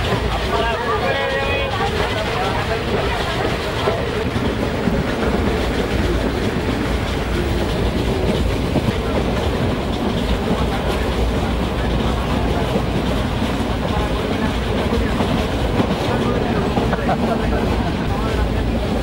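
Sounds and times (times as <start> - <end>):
train rumbling inside carriage: 0.0 - 19.0.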